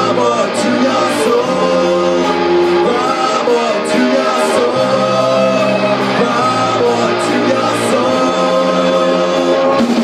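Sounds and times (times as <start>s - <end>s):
electric guitar: 0.0s - 10.0s
rock band playing live: 0.0s - 10.0s.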